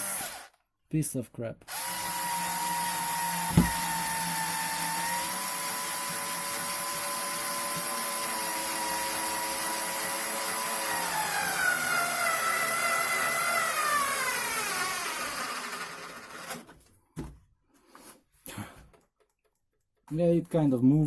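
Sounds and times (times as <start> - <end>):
electric drill motor running: 0.0 - 0.6, 1.7 - 16.7.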